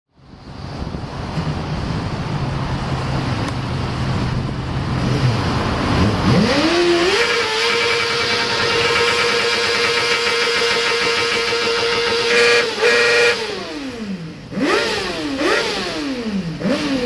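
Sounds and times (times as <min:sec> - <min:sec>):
noisy rumble: 0:00.1 - 0:17.0
motorcycle engine revving: 0:02.9 - 0:17.0.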